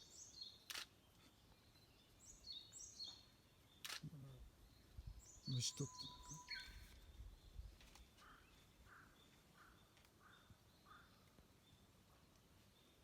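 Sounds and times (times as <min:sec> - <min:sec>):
bird call note: 0:05.7 - 0:06.8.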